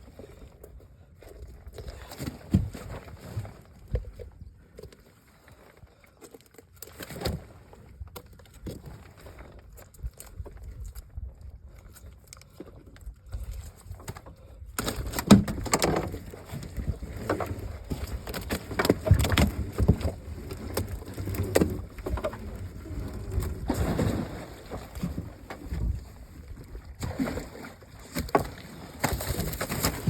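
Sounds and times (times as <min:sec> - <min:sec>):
knocks and thumps on boat: 0:01.9 - 0:04.3, 0:13.3 - 0:30.0.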